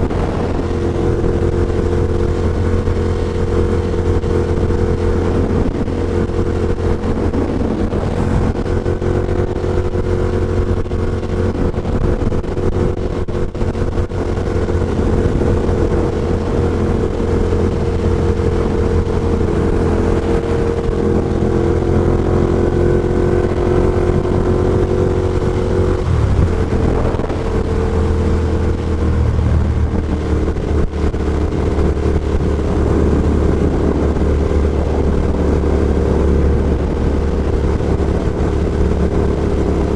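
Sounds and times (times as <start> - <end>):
motorcycle engine cruising: 0.0 - 39.9
wind noise: 0.0 - 39.9.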